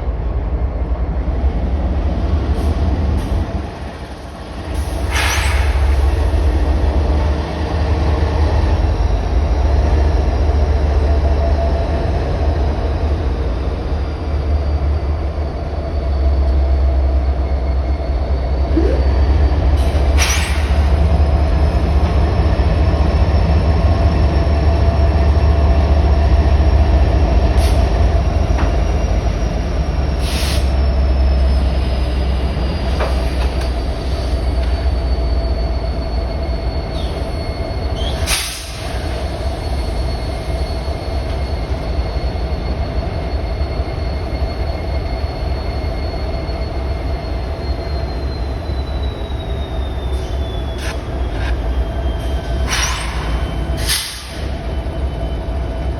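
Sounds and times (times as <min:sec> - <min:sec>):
freight train cars rumbling: 0:00.0 - 0:55.9
high wheel squeal: 0:04.7 - 0:07.2, 0:12.5 - 0:24.8, 0:26.1 - 0:55.9
sharp metal clanks: 0:52.5 - 0:54.4.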